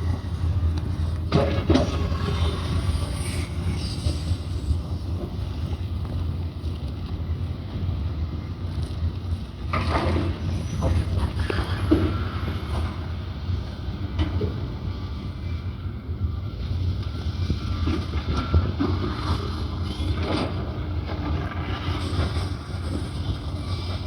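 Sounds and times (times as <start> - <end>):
clanking and scraping: 0.0 - 5.7
diesel engines rumbling: 0.0 - 14.9.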